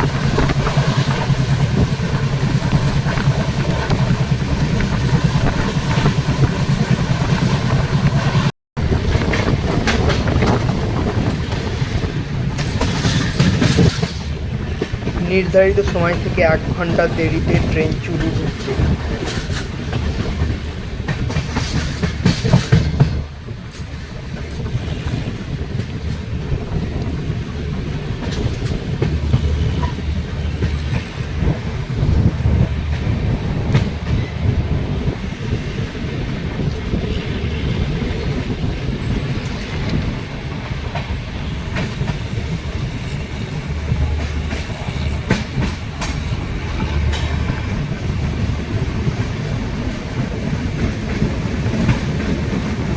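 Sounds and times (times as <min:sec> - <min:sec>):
wheels clicking over rail joints: 0:00.0 - 0:15.2, 0:18.3 - 0:35.1
train coaches rumbling: 0:00.0 - 0:52.9.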